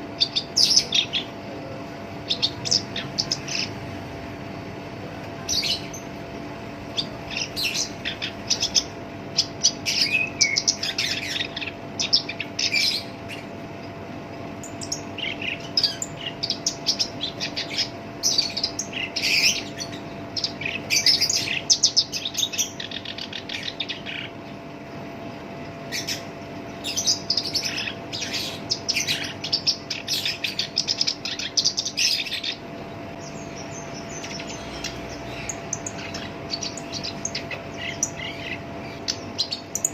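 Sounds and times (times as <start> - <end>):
reed warbler singing: 0.0 - 4.8, 5.4 - 24.7, 25.6 - 39.9
steady low hum: 0.0 - 39.9.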